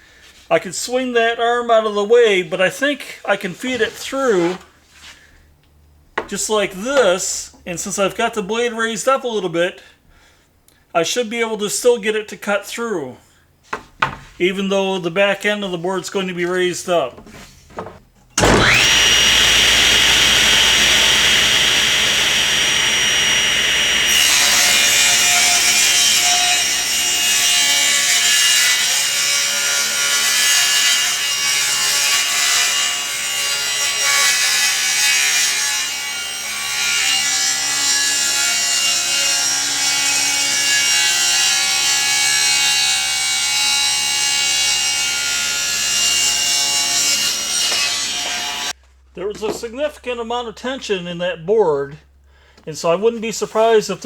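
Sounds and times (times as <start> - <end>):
table saw cutting wood: 17.8 - 48.7.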